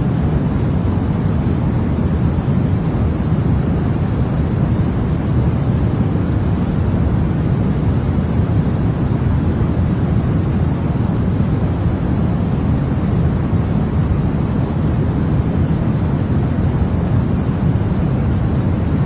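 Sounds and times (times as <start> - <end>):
deep white noise hiss: 0.0 - 19.0.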